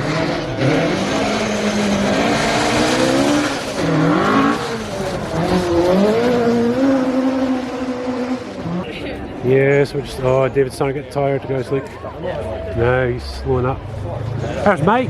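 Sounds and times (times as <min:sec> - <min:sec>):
rally car engine revving: 0:00.0 - 0:10.2.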